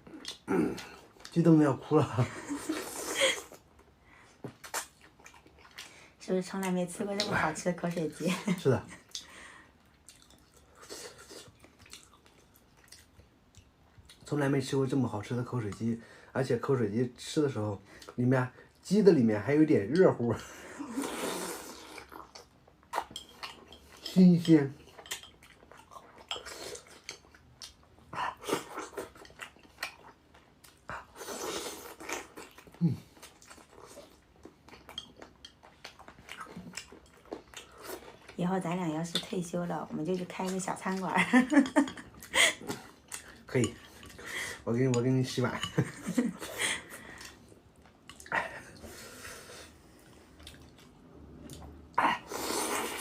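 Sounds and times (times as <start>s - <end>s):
person chewing food: 0.0s - 1.4s, 2.5s - 7.4s, 9.0s - 14.3s, 20.8s - 38.4s, 39.9s - 53.0s.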